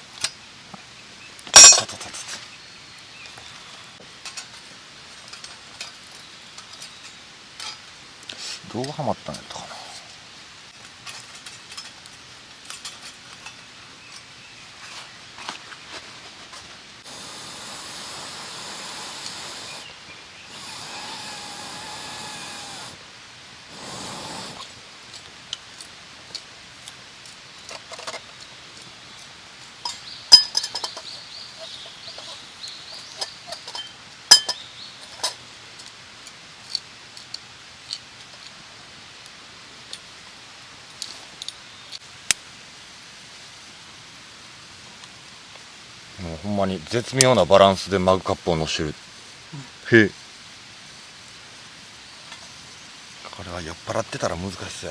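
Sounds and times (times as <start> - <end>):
metal stove parts clinking: 1.5 - 2.4, 11.0 - 13.7, 29.8 - 35.4.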